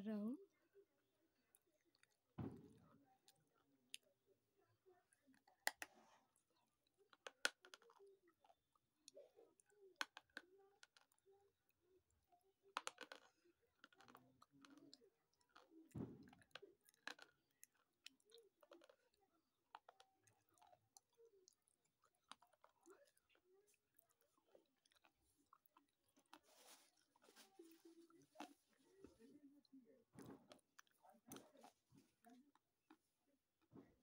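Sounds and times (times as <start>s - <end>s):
wet chewing: 13.9s - 29.2s.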